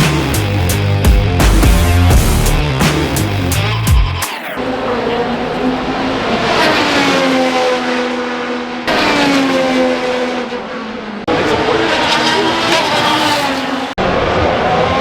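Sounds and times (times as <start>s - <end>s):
race cars passing at speed: 4.6s - 15.0s.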